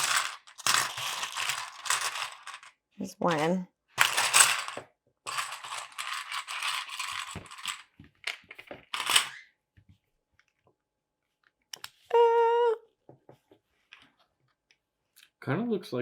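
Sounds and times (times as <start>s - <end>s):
plastic pieces clattering: 0.0s - 9.4s.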